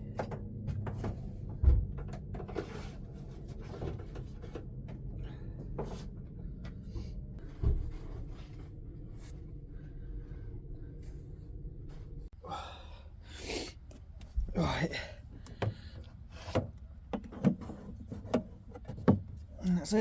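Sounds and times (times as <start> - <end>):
steady low rumble: 0.0 - 17.1
containers clicking and clunking: 15.4 - 19.4.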